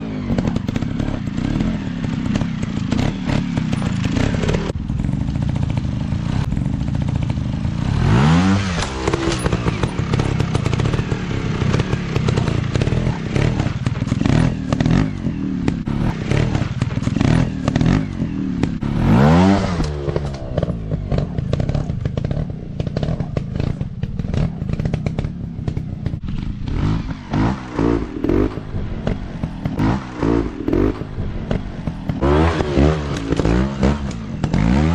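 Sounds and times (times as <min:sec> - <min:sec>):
dirt bike engines revving: 0:00.0 - 0:34.9
clatter and knocks: 0:08.8 - 0:15.2.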